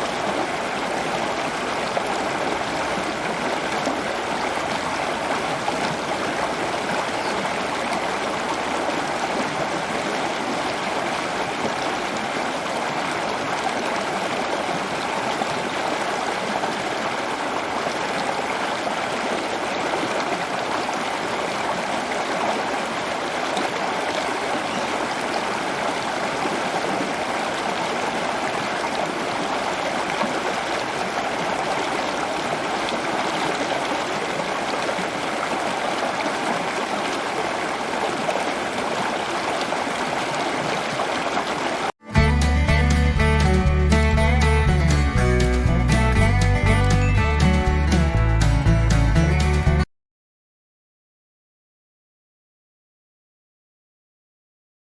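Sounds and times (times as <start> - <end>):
running water trickling: 0.0 - 41.9.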